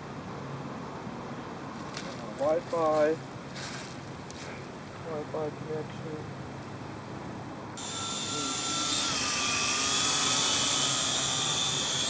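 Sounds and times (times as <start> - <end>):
drone propellers whining: 7.8 - 12.0.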